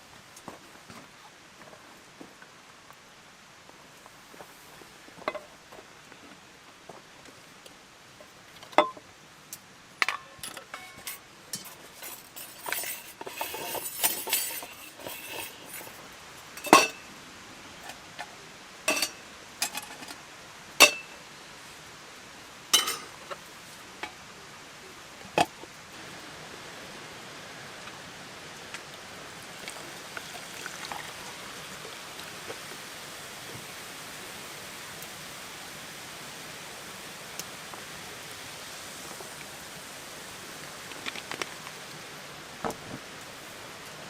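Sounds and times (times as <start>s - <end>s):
metal cookware clinking: 10.0s - 16.0s, 16.6s - 17.1s, 18.9s - 20.2s, 20.8s - 21.2s, 22.8s - 23.3s
metal cookware scraping and rattling: 10.0s - 16.0s, 16.6s - 17.1s, 18.9s - 20.2s, 20.8s - 21.2s, 22.8s - 23.3s.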